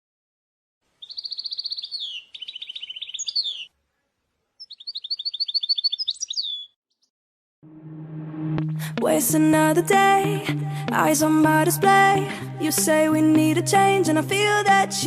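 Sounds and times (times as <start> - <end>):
canary singing trills: 1.0 - 7.1.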